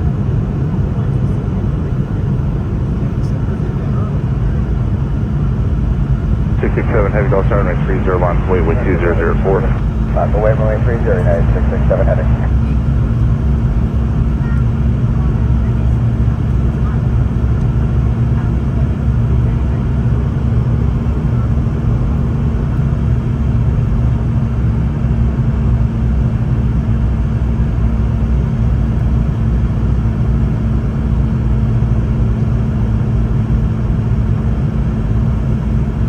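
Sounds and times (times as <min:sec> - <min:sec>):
jet engine rumble in cabin: 0:00.0 - 0:36.0
steady low hum: 0:05.9 - 0:17.4
airflow: 0:06.6 - 0:12.6.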